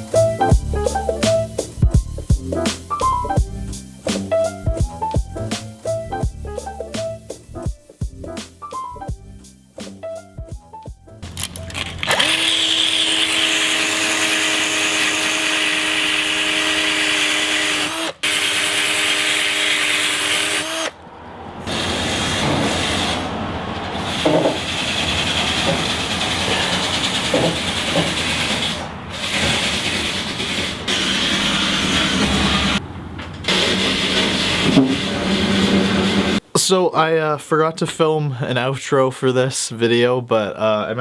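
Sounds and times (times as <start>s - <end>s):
power tool whining: 11.3s - 36.4s
scattered knocks: 23.9s - 36.1s.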